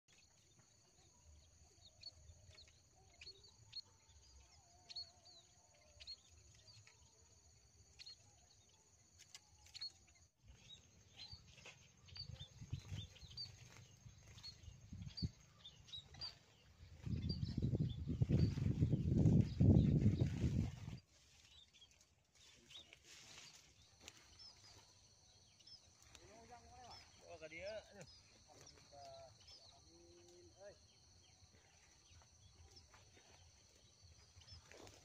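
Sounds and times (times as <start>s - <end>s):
small birds chirping: 0.1s - 35.0s
low wind rumble: 16.9s - 21.0s.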